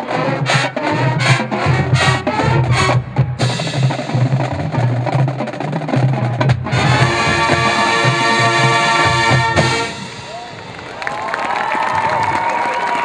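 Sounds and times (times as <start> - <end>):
drumline drumming: 0.0 - 13.0
marching band playing: 0.0 - 13.0
brass section holding a chord: 6.7 - 10.4.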